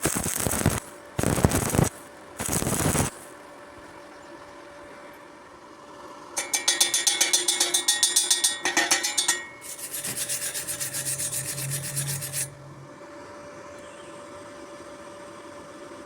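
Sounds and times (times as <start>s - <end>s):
hand tool rasping on metal: 6.4s - 12.7s.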